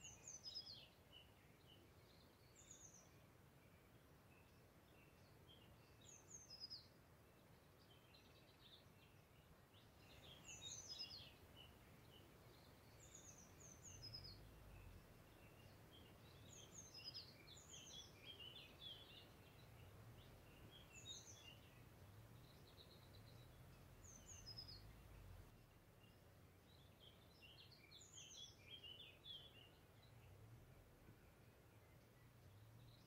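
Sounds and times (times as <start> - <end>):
distant songbird chirping: 0.0 - 33.0
faint low rumble: 11.2 - 16.6, 18.6 - 27.5.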